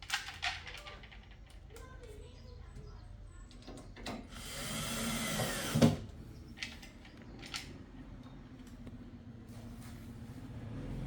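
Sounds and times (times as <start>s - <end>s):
small power tool motor: 4.4s - 6.0s.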